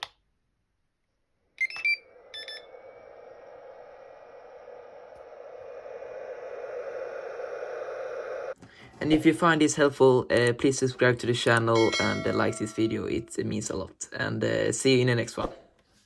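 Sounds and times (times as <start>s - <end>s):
charger beeping: 1.6s - 8.6s
cooling fan whirring: 1.6s - 13.2s.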